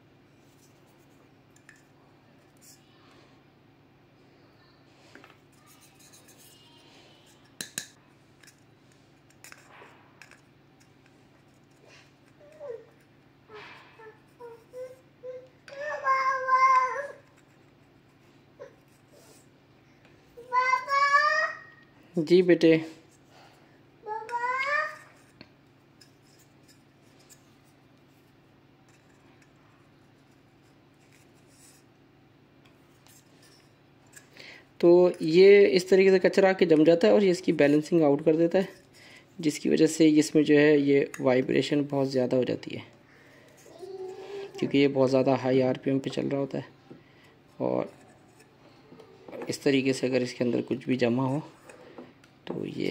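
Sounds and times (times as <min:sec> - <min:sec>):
small parts being handled: 0:07.4 - 0:13.1.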